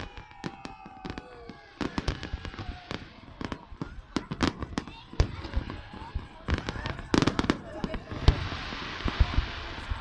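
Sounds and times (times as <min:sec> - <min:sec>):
fireworks bangs and crackles: 0:00.0 - 0:10.0
fireworks whistling: 0:00.0 - 0:10.0
crackling hiss: 0:05.3 - 0:10.0.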